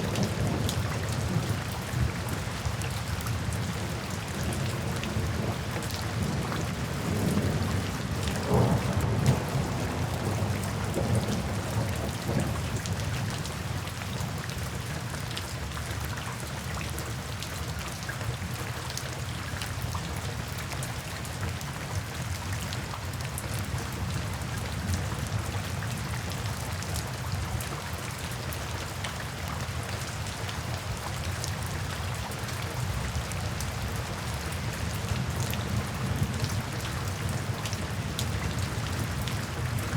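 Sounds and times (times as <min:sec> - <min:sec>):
rain falling into puddles: 0:00.0 - 0:39.9
low thunder rumble: 0:06.9 - 0:12.7.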